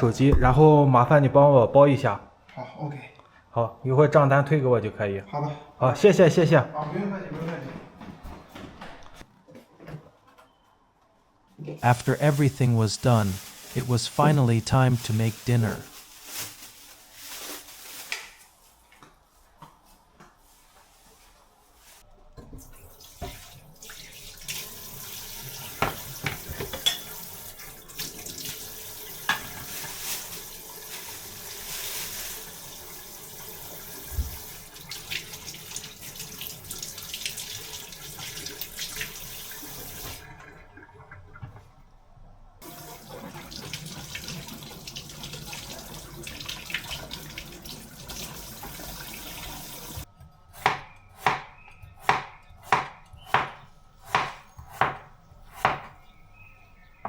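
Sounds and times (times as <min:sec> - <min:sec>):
tap water running into sink: 0:22.6 - 0:31.6, 0:32.4 - 0:40.6, 0:42.6 - 0:50.0
knife chopping on cutting board: 0:50.6 - 0:56.0.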